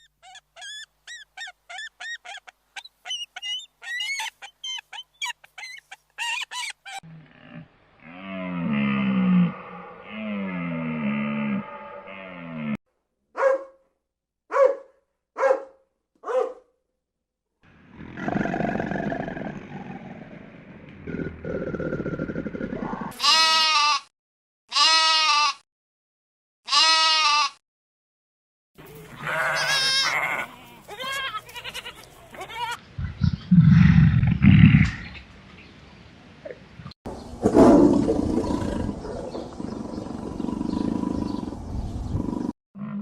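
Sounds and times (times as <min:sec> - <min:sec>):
loud low grunting: 0:07.1 - 0:12.8, 0:33.0 - 0:35.2
goat bleating: 0:23.1 - 0:24.0, 0:24.7 - 0:25.6, 0:26.7 - 0:27.6, 0:29.1 - 0:32.8.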